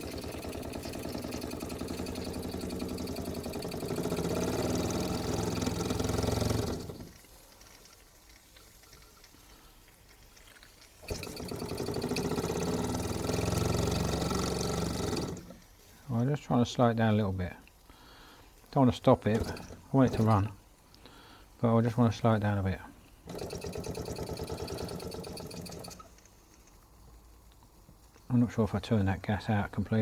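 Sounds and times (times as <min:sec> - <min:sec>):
toy steam engine chuffing: 0:00.0 - 0:15.6, 0:18.9 - 0:20.6, 0:23.2 - 0:26.3.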